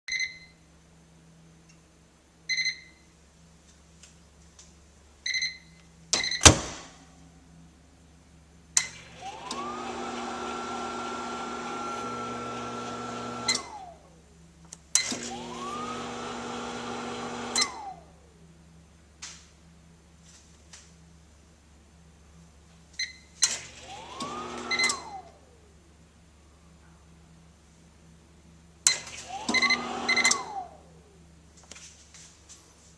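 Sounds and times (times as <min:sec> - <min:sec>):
loud clunk: 0:06.2 - 0:07.0
microwave motor hum and whine: 0:08.9 - 0:14.6, 0:15.2 - 0:18.8, 0:23.7 - 0:27.0, 0:29.2 - 0:31.4
microwave oven beeping: 0:09.1 - 0:13.8, 0:23.9 - 0:25.3, 0:29.3 - 0:30.8.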